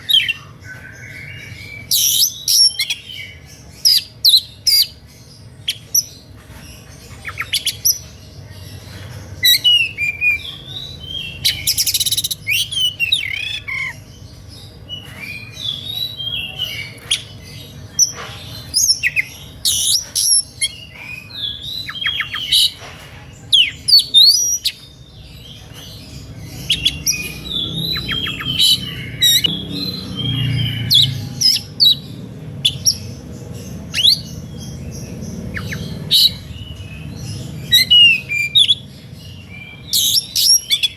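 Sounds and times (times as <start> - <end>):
songbird whistling and trilling: 0.0 - 5.0, 9.4 - 14.0, 26.6 - 33.1, 33.9 - 40.9.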